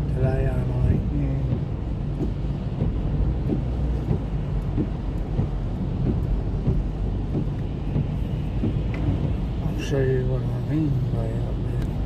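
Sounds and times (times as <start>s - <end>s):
car engine and tyre drone: 0.0s - 12.0s.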